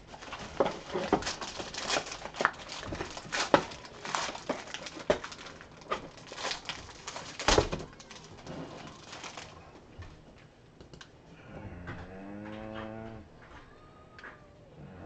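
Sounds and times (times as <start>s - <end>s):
packaging crinkling and clicking: 0.0s - 9.9s.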